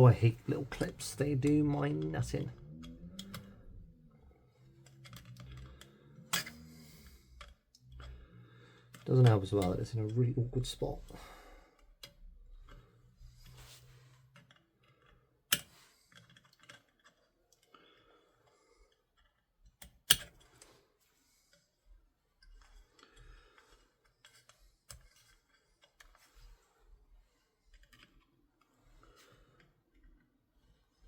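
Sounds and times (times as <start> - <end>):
metal tool clicking and scraping: 4.7 - 8.2, 8.9 - 10.2.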